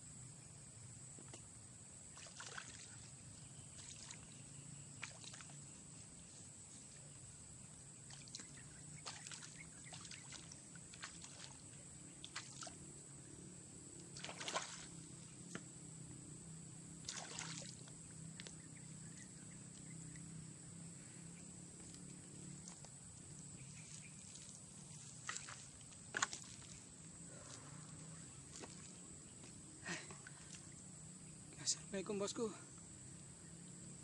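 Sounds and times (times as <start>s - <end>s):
water splashes and sloshes: 2.0s - 15.7s, 17.0s - 18.6s, 21.8s - 31.7s.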